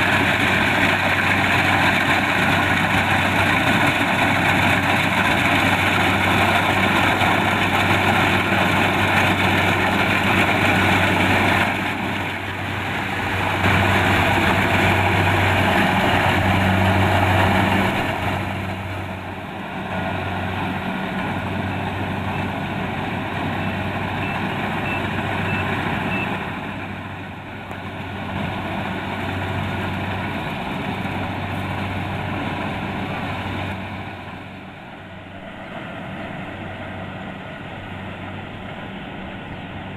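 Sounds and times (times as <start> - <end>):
threshing machinery rattling: 0.0 - 34.5
diesel engine hum: 0.0 - 39.9.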